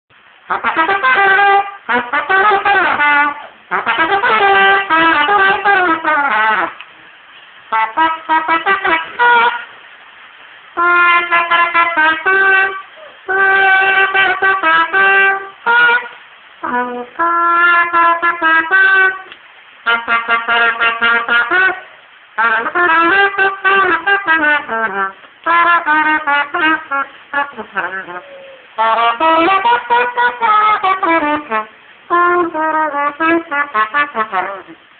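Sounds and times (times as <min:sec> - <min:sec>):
trumpet melody: 0:00.4 - 0:06.9, 0:07.6 - 0:09.9, 0:10.7 - 0:34.9.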